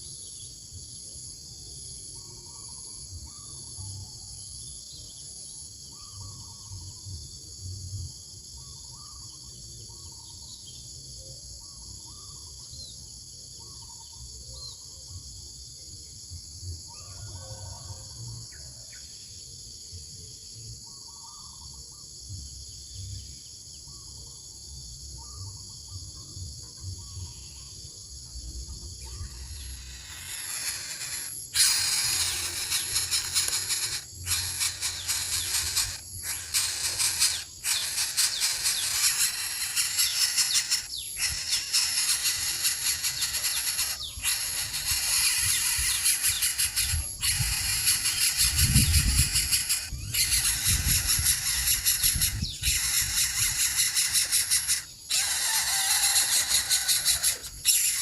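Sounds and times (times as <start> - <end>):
crickets chirping: 0.0 - 58.0
hiss: 29.3 - 58.0.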